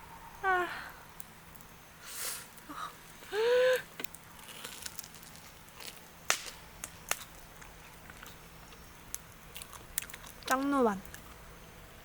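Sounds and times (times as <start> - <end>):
sharp clicks and pops: 4.0 - 11.3.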